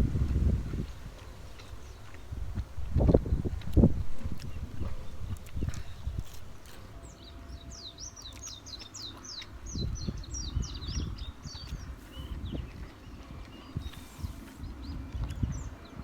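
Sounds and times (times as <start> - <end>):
low thumps and rumbling: 0.0 - 6.4
small bird chirping: 4.4 - 15.7.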